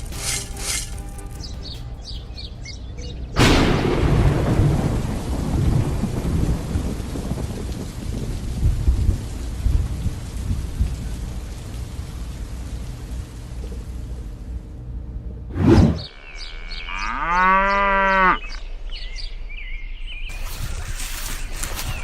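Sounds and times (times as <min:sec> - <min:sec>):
thunder clap and rumble: 0:00.0 - 0:14.6
rain hissing: 0:00.0 - 0:15.2, 0:20.3 - 0:22.0.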